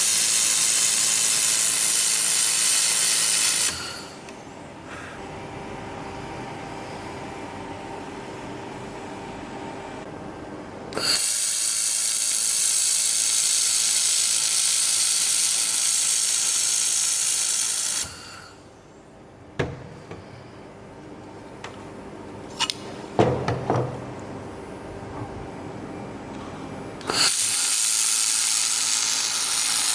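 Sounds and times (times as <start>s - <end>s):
laser welding gun hissing: 0.0s - 4.3s, 11.0s - 18.6s, 27.0s - 29.9s.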